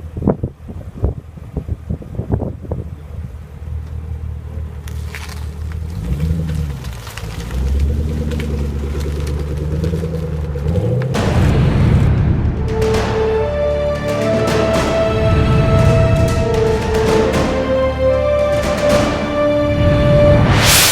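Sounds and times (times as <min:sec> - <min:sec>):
car engine rumbling and revving: 0:03.8 - 0:12.8.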